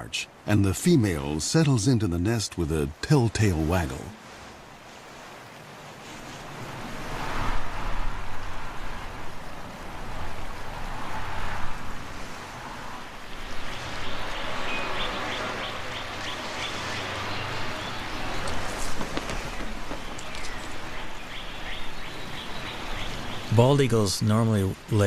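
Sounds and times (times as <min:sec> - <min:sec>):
wind rushing in gusts: 0:03.6 - 0:23.7
bird chirping: 0:13.3 - 0:23.8.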